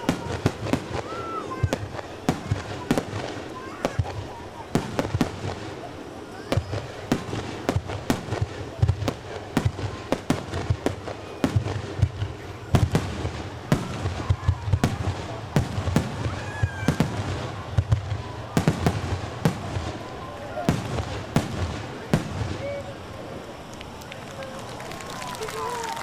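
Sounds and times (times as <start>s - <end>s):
firework shells bursting: 6.6s - 25.7s.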